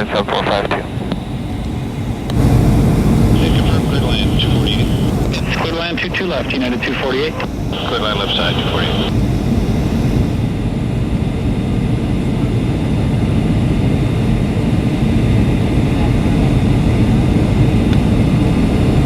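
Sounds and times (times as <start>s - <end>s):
airliner engines rumbling: 0.0s - 19.0s
rushing air in cabin: 0.0s - 19.0s.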